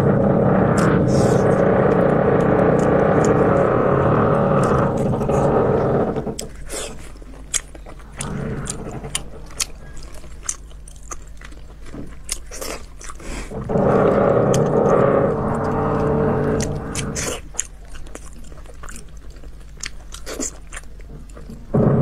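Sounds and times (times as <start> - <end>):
dense loud noise: 0.0 - 6.6, 8.0 - 11.5, 13.5 - 17.5, 21.4 - 22.0
person chewing with wet smacks: 6.4 - 8.3, 9.1 - 13.5, 17.2 - 21.7.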